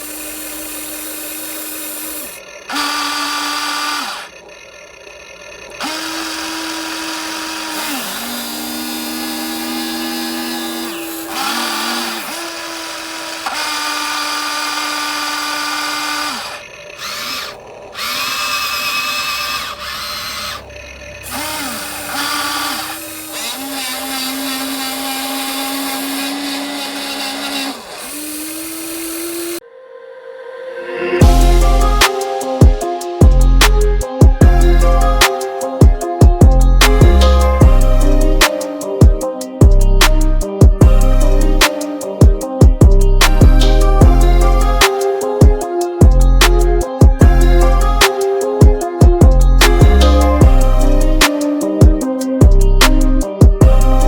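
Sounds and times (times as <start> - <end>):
small electric motors whining: 0.0 - 29.6.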